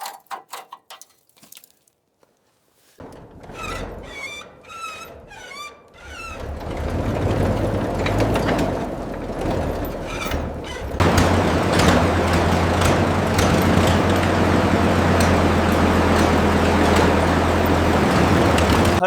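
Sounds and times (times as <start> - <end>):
short high squeaks: 3.6 - 6.6
vehicle engine running: 6.8 - 19.0.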